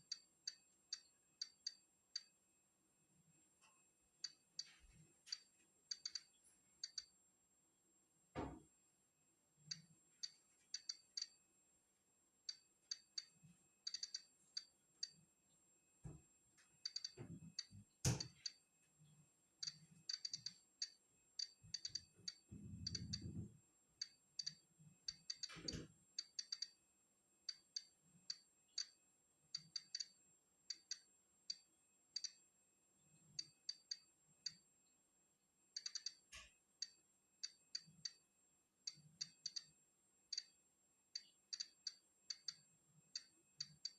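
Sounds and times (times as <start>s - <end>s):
geiger counter clicking: 0.0s - 2.4s, 4.2s - 7.2s, 9.7s - 11.4s, 12.4s - 15.2s, 16.8s - 18.6s, 19.6s - 23.4s, 24.0s - 26.8s, 27.4s - 32.4s, 33.4s - 34.7s, 35.7s - 43.9s.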